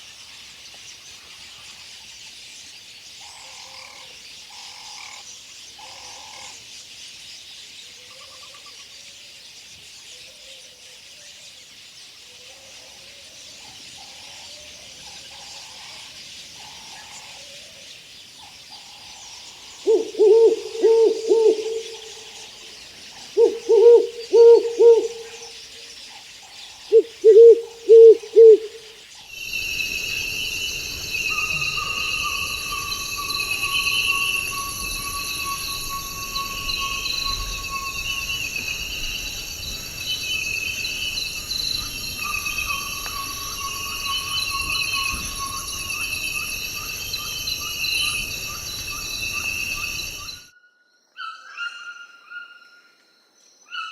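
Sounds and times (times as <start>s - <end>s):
high jungle calls: 19.8s - 25.7s, 26.8s - 50.5s
bird giving low hoots: 19.9s - 22.3s, 23.3s - 25.5s, 26.9s - 46.0s
long falling whistle: 29.3s - 50.5s
loud high buzzing: 29.4s - 50.4s.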